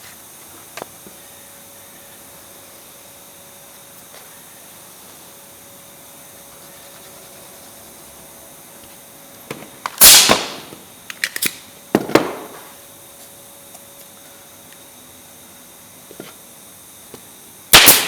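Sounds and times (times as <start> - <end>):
pneumatic nail gun shots: 9.9 - 12.7, 17.7 - 18.0.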